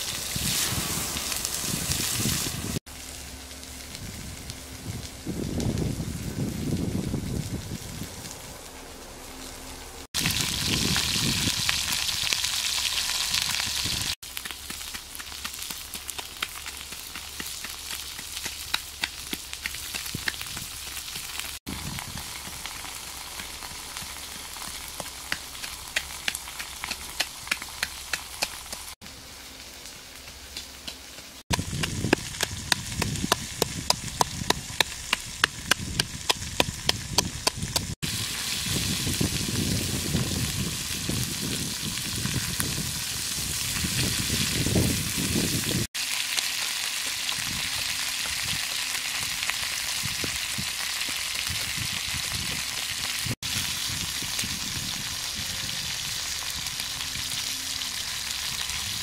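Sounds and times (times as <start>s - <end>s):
liver sizzling in a pan: 10.1s - 29.0s, 31.3s - 59.0s.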